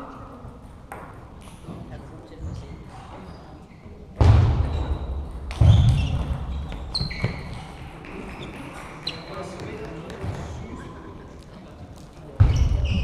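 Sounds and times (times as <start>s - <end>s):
loud thuds echoing in a hall: 4.1s - 10.8s, 12.3s - 13.0s.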